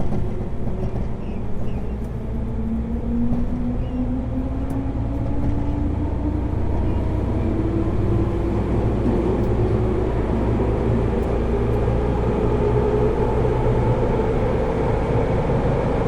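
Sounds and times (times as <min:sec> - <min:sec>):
low rumble of running gear: 0:00.0 - 0:11.9
train traction motors humming: 0:00.0 - 0:16.0.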